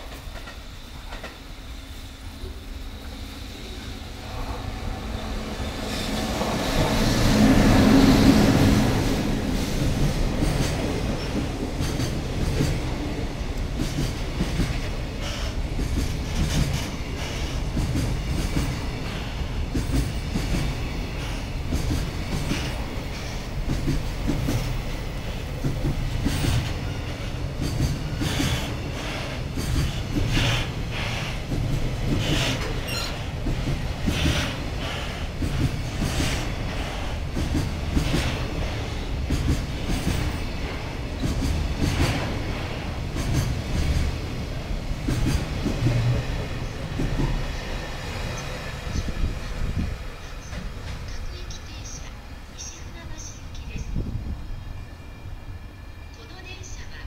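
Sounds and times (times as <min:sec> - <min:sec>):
electric locomotive passing: 0:00.0 - 0:57.0.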